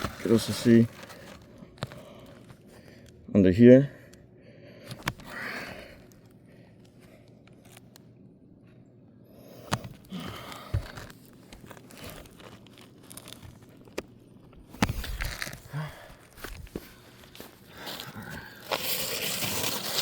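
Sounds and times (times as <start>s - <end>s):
roof shingles rustling and scraping: 0.0s - 1.6s, 16.3s - 20.0s.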